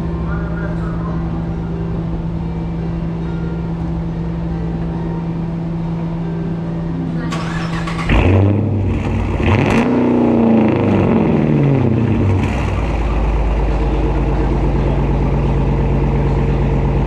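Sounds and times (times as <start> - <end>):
deep engine idle: 0.0 - 17.0
car engine revving: 7.1 - 17.0.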